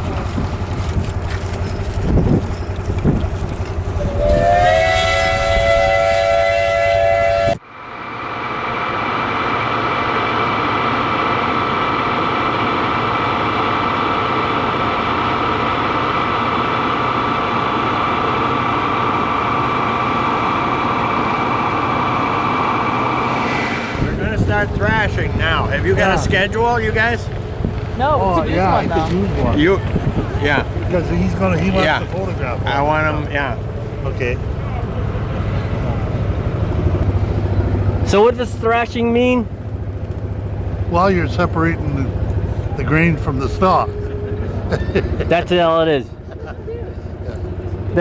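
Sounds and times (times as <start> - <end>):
engine running: 0.0 - 48.0
steam whistle blowing: 4.0 - 7.6.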